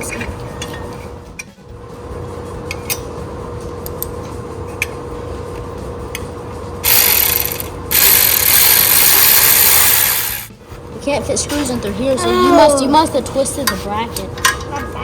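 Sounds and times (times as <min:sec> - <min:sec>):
ratchet wrench clicking: 0:06.8 - 0:10.5.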